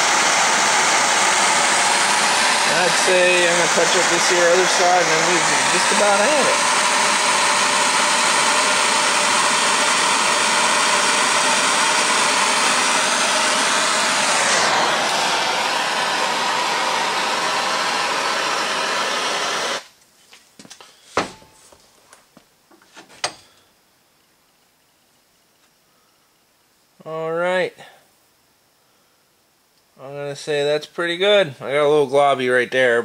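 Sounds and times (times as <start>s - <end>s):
gas torch hissing: 0.0s - 19.9s.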